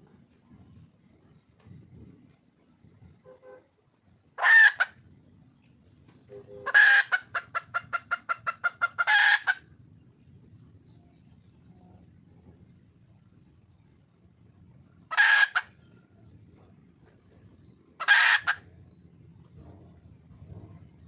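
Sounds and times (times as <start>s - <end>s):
junglefowl hen calling: 4.4s - 5.1s, 6.3s - 9.8s, 15.0s - 16.2s, 18.0s - 18.9s
hen clucking rapidly: 4.4s - 5.2s, 6.6s - 9.8s, 15.0s - 16.8s, 17.4s - 19.0s.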